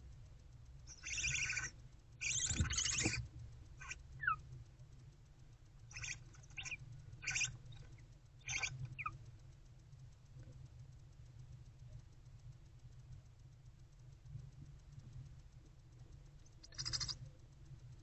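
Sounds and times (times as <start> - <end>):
owlets hissing begging calls: 0.9 - 3.2, 6.0 - 7.5.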